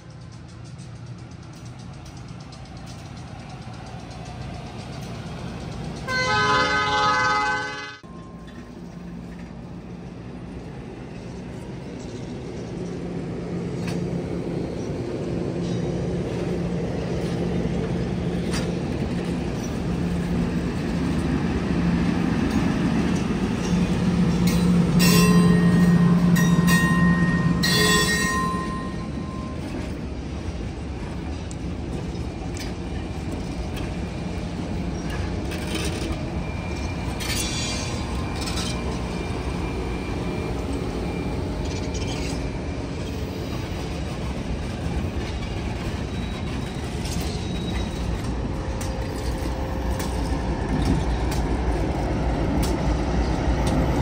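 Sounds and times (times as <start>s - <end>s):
train wheels rumbling on rails: 0.0s - 54.0s
train horn blast: 6.1s - 8.0s.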